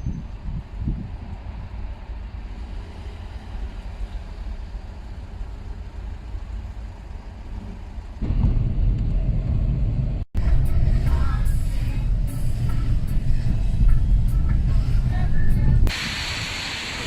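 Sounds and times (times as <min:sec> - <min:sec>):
vehicle low rumble: 0:00.0 - 0:15.9
dull low thumps: 0:08.2 - 0:15.9.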